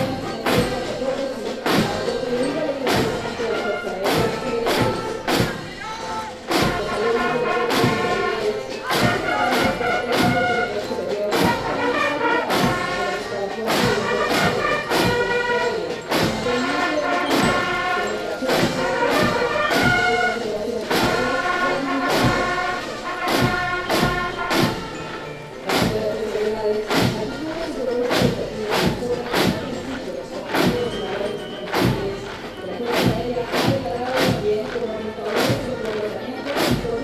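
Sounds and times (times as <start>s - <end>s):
brass band playing a march: 0.0s - 37.0s
bass drum beat: 25.6s - 35.9s.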